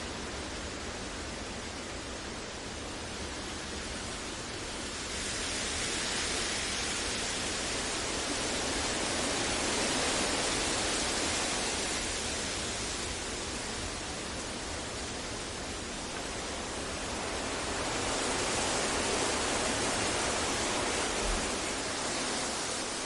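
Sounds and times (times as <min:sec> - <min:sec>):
steady deep noise hiss: 0:00.0 - 0:23.0.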